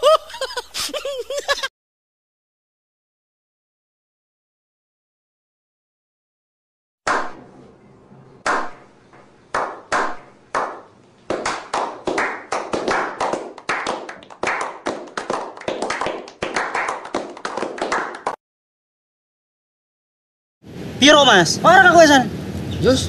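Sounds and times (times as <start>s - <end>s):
slow single hand claps: 8.5s - 8.8s, 9.5s - 18.4s
small-group applause: 9.6s - 18.4s.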